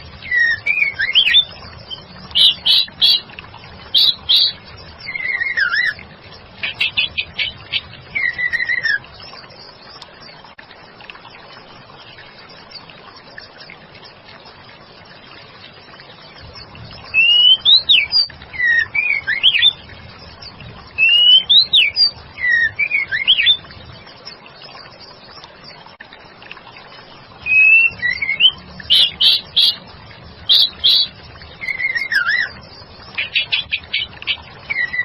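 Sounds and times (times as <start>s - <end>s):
bird singing whistled notes: 0.2s - 3.3s, 3.9s - 6.0s, 6.6s - 9.7s, 17.0s - 19.8s, 21.0s - 23.8s, 27.4s - 35.0s.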